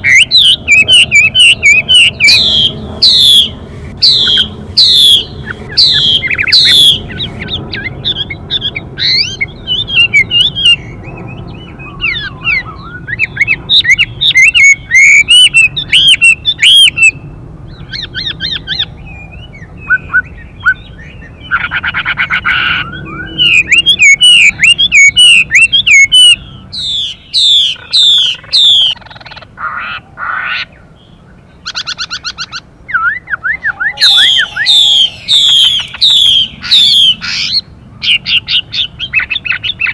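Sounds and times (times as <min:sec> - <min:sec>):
bird whistled song phrases: 0:00.0 - 0:29.0, 0:31.6 - 0:39.9
harsh rasping bird calls: 0:00.0 - 0:39.9.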